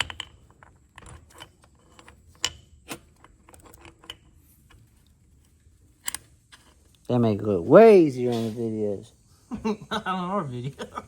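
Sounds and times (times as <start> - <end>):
small metal parts clicking and clinking: 0.0 - 7.0.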